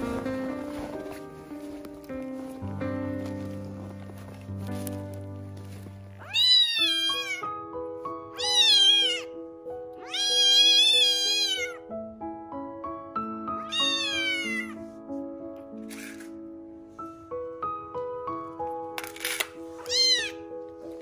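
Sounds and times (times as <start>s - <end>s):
music of sustained notes: 0.0s - 21.0s
kitten meowing: 6.2s - 7.5s, 8.3s - 9.4s, 10.0s - 11.9s, 13.6s - 14.8s, 19.8s - 20.4s.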